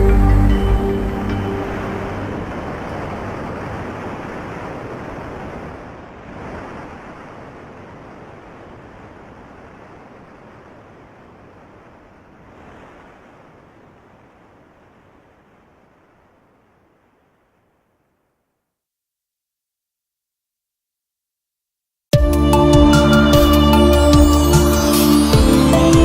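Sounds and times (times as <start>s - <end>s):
rushing water: 0.0s - 18.2s.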